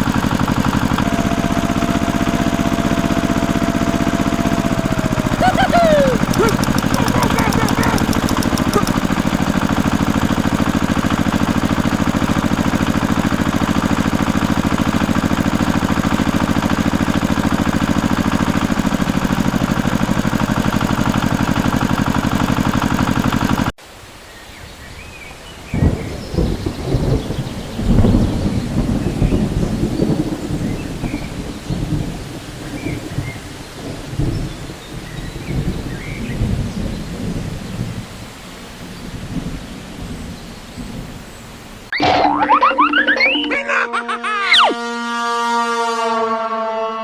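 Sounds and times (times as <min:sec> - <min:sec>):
small engine running: 0:00.0 - 0:23.8.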